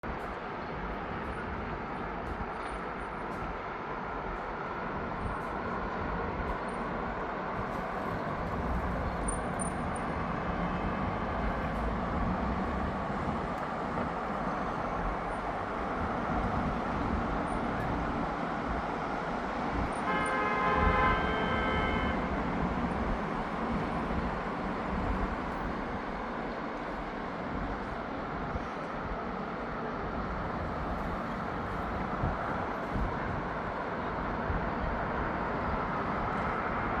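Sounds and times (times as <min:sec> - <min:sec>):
city street traffic: 0:00.0 - 0:37.0
vehicle horn: 0:20.0 - 0:22.3.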